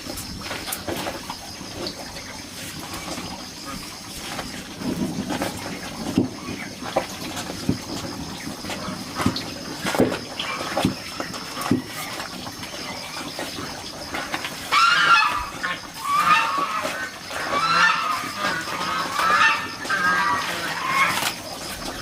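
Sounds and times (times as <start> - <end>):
farm animal calling: 8.0 - 22.0.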